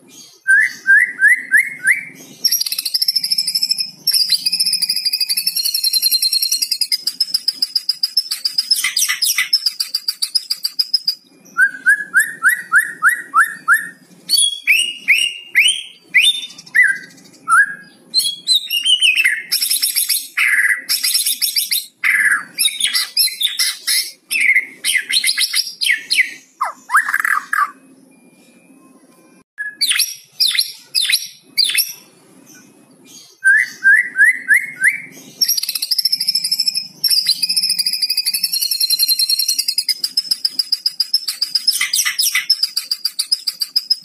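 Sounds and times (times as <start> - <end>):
songbird singing trills and whistles: 0.1 - 44.0.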